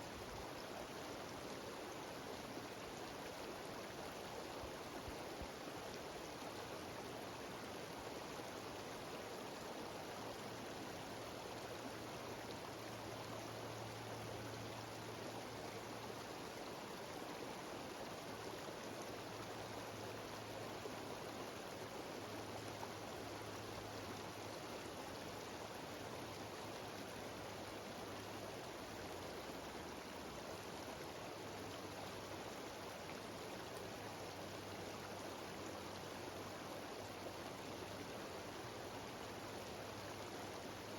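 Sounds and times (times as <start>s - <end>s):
stream cascading over rocks: 0.0s - 40.9s.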